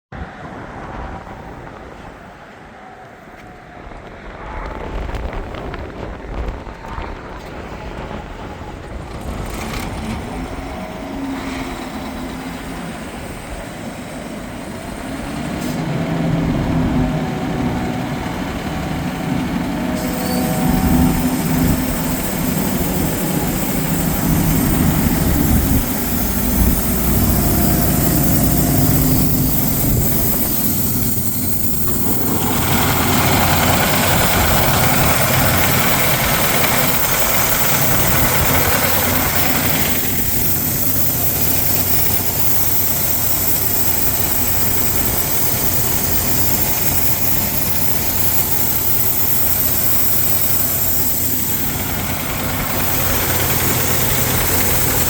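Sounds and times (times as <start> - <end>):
broad rushing sound: 7.6 - 55.0
air compressor diesel engine running: 8.4 - 55.0
high hiss: 19.8 - 55.0.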